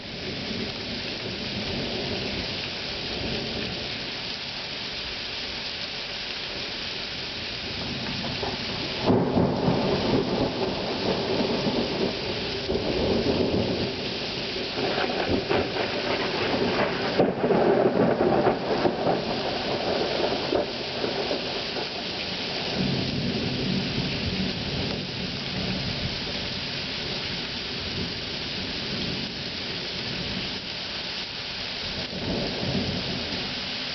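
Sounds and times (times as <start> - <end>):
heavy rain: 0.0 - 33.9
thunder rumbling: 7.8 - 26.5.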